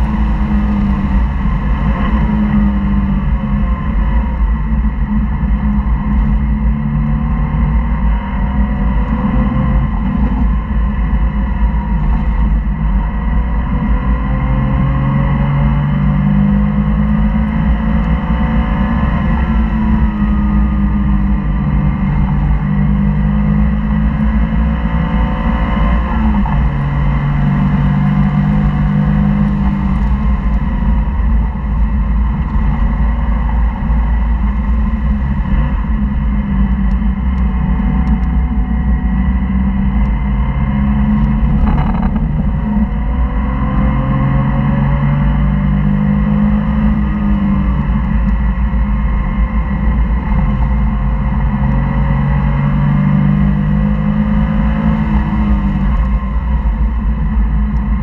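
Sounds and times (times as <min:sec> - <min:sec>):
car engine revving through gear changes: 0:00.0 - 0:58.0.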